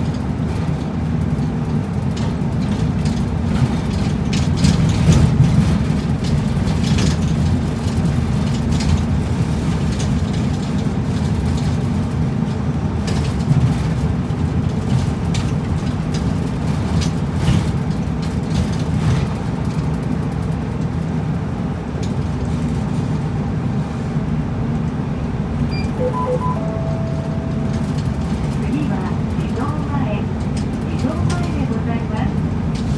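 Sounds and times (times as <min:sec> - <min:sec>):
bus engine and road rumble: 0:00.0 - 0:32.9
rattles of bus body: 0:00.0 - 0:32.9
held electronic tone: 0:25.7 - 0:28.3
short electronic beeps: 0:25.7 - 0:28.3.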